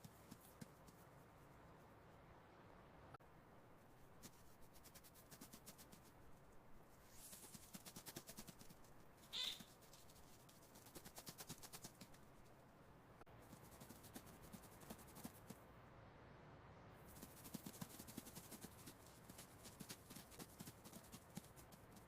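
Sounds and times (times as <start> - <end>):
mouse scratching and pattering: 4.2 - 6.2, 7.1 - 12.5, 13.4 - 15.6, 17.1 - 22.0
high-pitched mouse squeak: 9.3 - 9.7.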